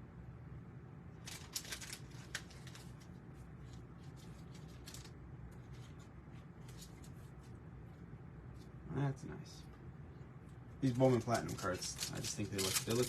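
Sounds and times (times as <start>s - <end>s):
low steady hum: 0.0s - 13.0s
cards being flipped: 11.0s - 13.0s.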